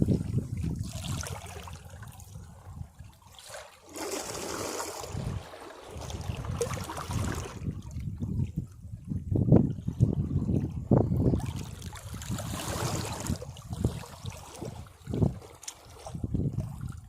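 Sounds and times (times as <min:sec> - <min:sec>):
waves breaking against rocks: 0:03.4 - 0:08.2, 0:11.2 - 0:16.6.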